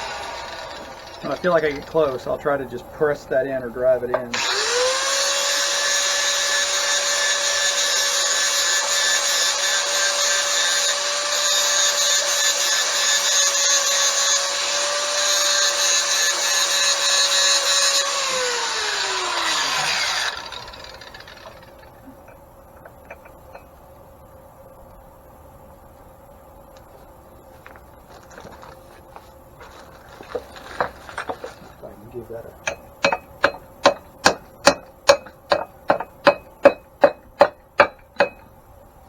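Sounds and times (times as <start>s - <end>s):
grinder whining: 0.0s - 2.4s, 4.1s - 23.7s, 32.6s - 38.4s.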